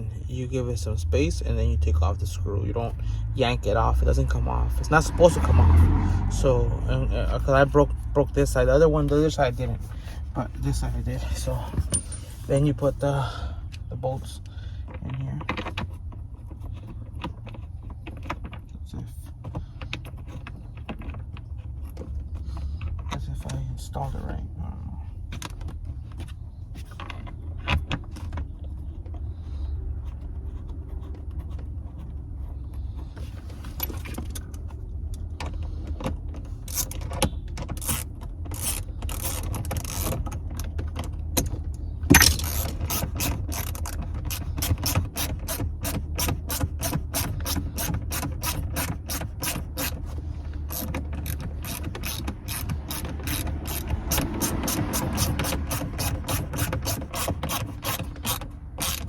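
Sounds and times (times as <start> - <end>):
ratchet wrench clicking: 36.6 - 37.0, 37.8 - 40.4, 42.1 - 59.0.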